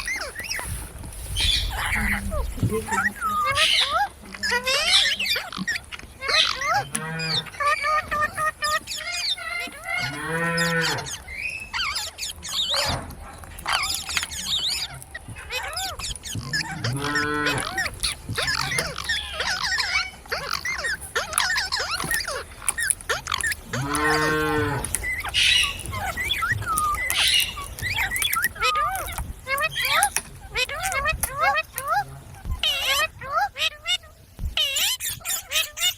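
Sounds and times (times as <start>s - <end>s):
birds chirping: 0.0s - 35.9s
cow mooing: 10.0s - 11.1s, 16.8s - 17.6s, 23.8s - 24.9s.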